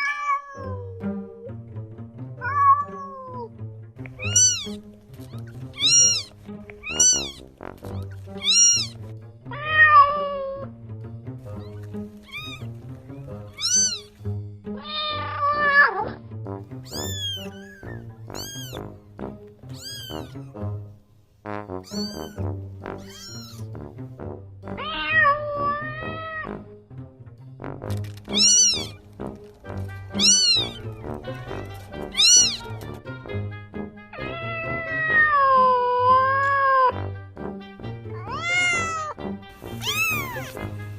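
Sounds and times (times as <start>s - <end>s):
cats meowing: 0.0s - 1.4s, 2.4s - 3.5s, 4.2s - 10.7s, 11.5s - 12.7s, 13.5s - 14.1s, 14.8s - 16.2s, 16.8s - 18.9s, 19.7s - 20.6s, 21.8s - 22.4s, 23.0s - 23.7s, 24.8s - 26.5s, 28.3s - 29.0s, 30.1s - 31.0s, 32.0s - 33.0s, 34.2s - 37.0s, 38.1s - 40.7s
soft background music: 0.0s - 40.9s.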